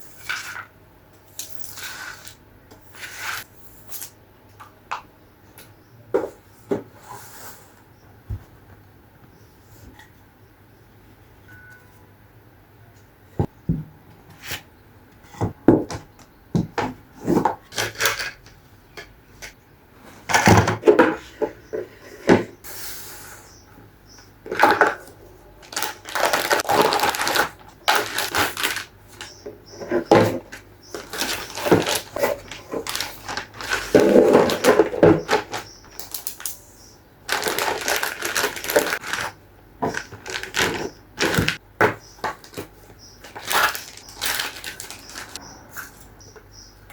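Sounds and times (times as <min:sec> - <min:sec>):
rustling and scraping objects: 0:00.0 - 0:04.7, 0:06.1 - 0:08.8, 0:16.8 - 0:18.6, 0:19.3 - 0:46.8.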